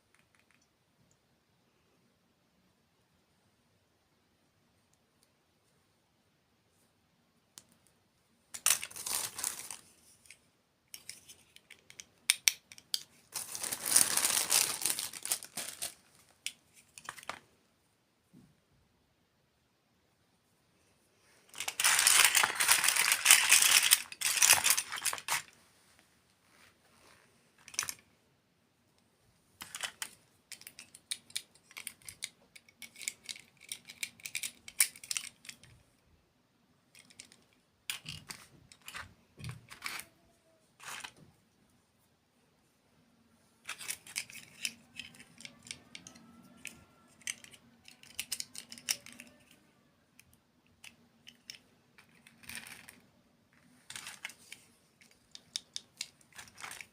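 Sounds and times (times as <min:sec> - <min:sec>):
food packaging crackling: 0:08.6 - 0:09.9, 0:13.3 - 0:16.3, 0:21.5 - 0:25.6.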